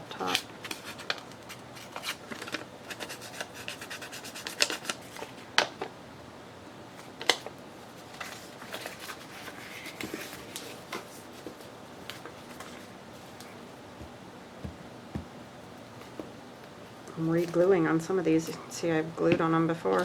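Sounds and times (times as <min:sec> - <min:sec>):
sharp taps and rustles: 0:08.1 - 0:16.4.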